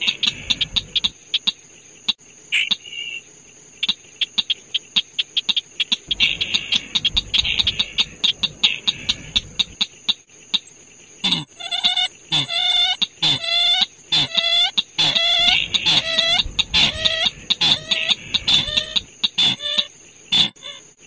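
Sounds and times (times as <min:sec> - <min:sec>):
harsh pitched bird calls: 0:00.0 - 0:01.5, 0:03.8 - 0:09.8, 0:11.2 - 0:20.9
faint high bird chirps: 0:03.8 - 0:09.8, 0:11.2 - 0:20.9
rapid clicking: 0:03.8 - 0:09.9
steady high whine: 0:06.0 - 0:09.8.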